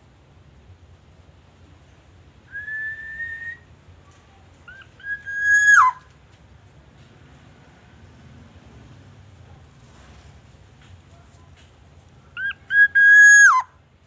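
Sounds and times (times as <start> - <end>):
bird fluty whistled calls: 2.5 - 3.6, 4.7 - 6.0, 12.4 - 13.7.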